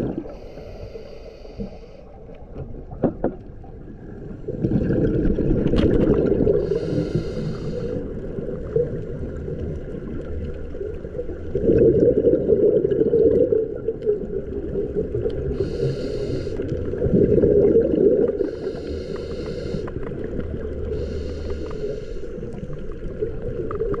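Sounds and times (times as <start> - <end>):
diver breathing through regulator: 0.1 - 2.3, 6.4 - 8.2, 15.4 - 17.0, 18.2 - 22.8
low bubbling exhalations: 4.5 - 7.6, 11.5 - 14.2, 15.3 - 20.1.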